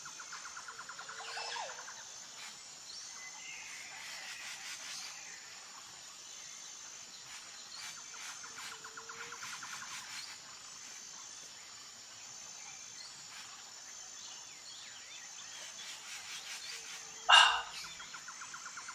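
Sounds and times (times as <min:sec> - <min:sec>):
high insect buzz: 0:06.8 - 0:18.2
fast pulsing insect trill: 0:06.9 - 0:18.9.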